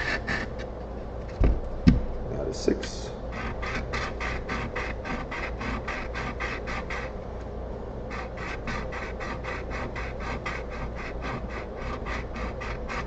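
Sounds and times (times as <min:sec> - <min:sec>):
chisel scraping on sharpening stone: 0:03.4 - 0:07.1, 0:08.1 - 0:13.0.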